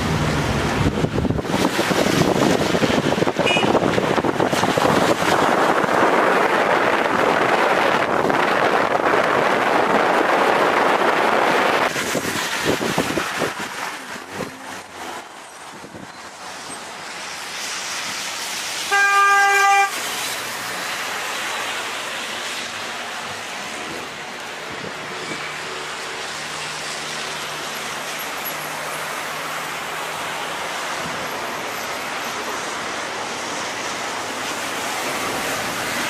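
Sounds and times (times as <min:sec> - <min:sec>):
wind buffeting microphone: 0:00.0 - 0:16.2
traffic noise: 0:00.0 - 0:36.0
vehicle horn toot: 0:03.4 - 0:03.8, 0:18.9 - 0:20.0.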